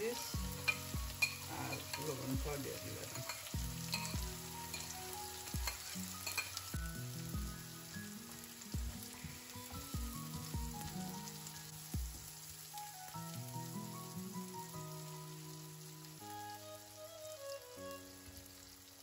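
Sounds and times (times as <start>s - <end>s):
background music: 0.0s - 19.0s
vegetables sizzling in oil: 0.0s - 19.0s
spatula scraping pan: 3.0s - 5.0s.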